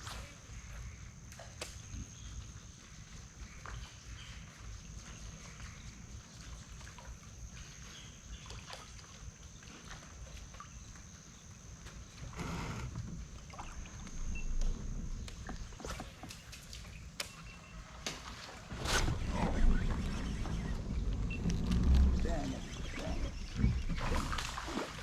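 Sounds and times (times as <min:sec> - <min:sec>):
rush of water: 0:17.8 - 0:25.0
low rumble: 0:18.7 - 0:25.0.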